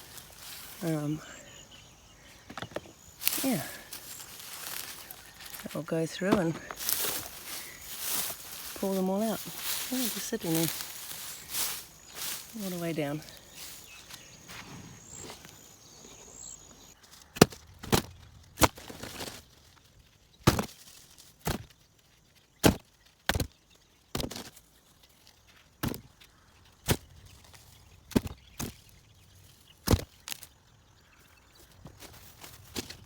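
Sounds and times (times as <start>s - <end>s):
potatoes dropping into a bag: 2.6s - 12.6s.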